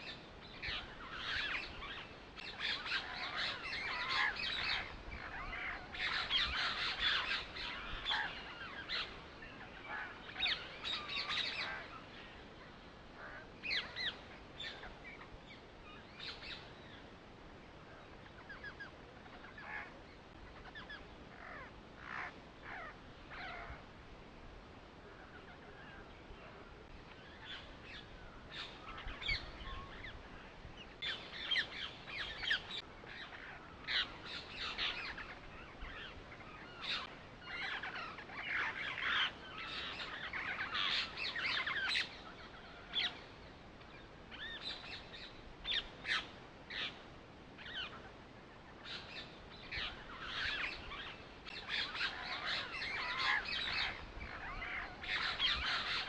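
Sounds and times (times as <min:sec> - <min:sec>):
birds chirping and calling: 0:00.0 - 0:17.2, 0:17.9 - 0:23.8, 0:25.0 - 0:56.0.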